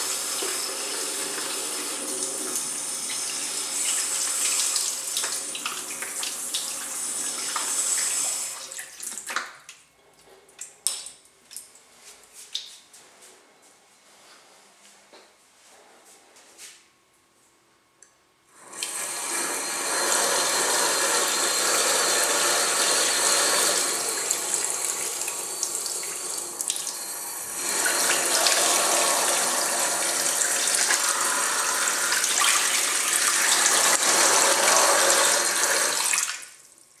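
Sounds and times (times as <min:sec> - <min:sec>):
tap running loud water: 0:00.0 - 0:09.5, 0:18.6 - 0:36.5.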